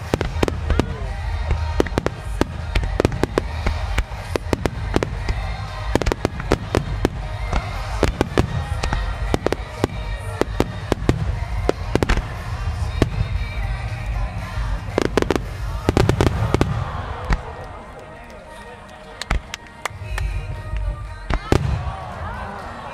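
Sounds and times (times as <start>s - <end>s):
song playing: 0.0s - 22.9s.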